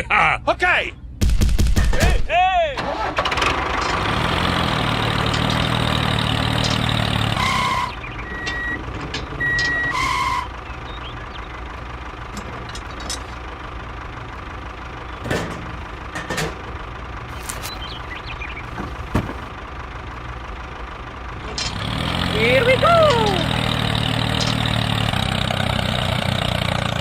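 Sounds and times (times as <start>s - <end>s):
truck engine running: 2.8s - 27.0s
reversing alarm beeps: 7.4s - 8.8s, 9.4s - 10.5s.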